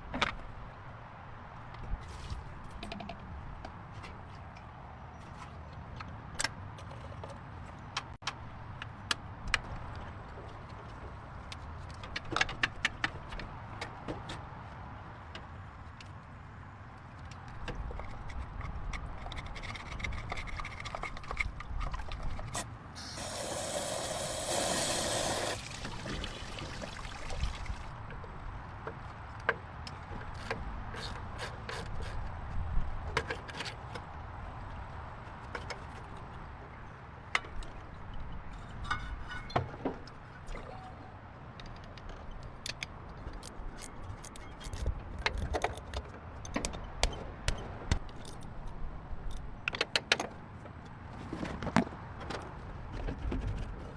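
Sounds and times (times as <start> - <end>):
air or spray hiss: 23.0 - 25.6.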